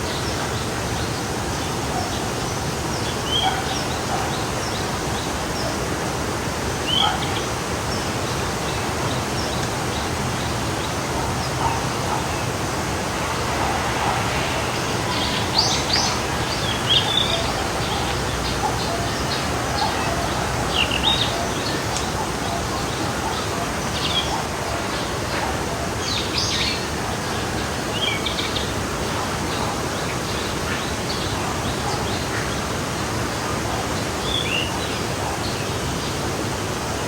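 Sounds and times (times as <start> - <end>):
stream flowing: 0.0 - 37.0
birds chirping: 6.8 - 24.9.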